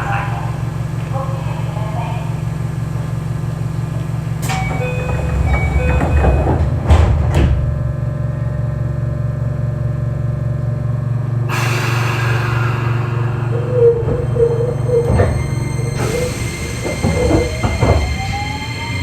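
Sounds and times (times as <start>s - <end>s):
train electrical hum: 0.0s - 19.0s
sliding doors shutting: 4.3s - 7.9s, 11.5s - 19.0s
hiss: 11.5s - 14.6s.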